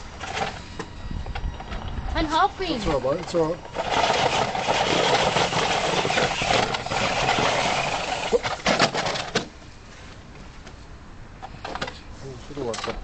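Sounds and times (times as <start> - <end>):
toy car electric motor and gears: 1.6 - 9.3.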